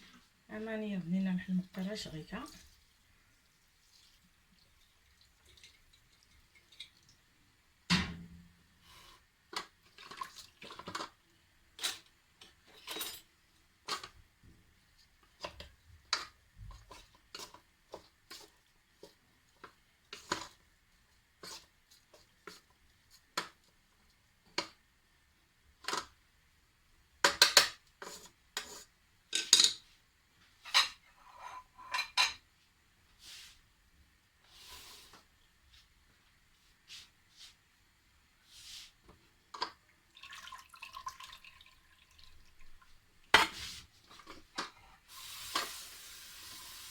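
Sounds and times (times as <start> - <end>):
cookware and utensils clinking: 11.8 - 14.2, 27.3 - 29.9, 30.6 - 32.4.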